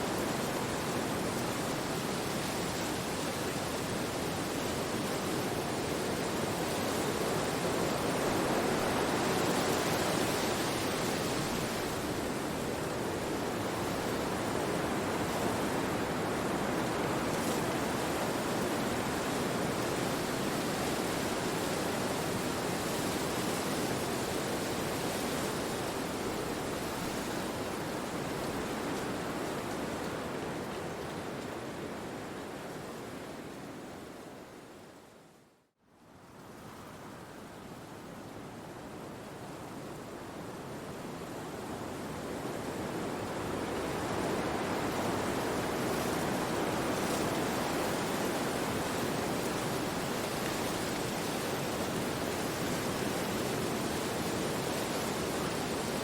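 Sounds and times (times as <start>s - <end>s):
wind rushing through trees: 0.0s - 56.0s.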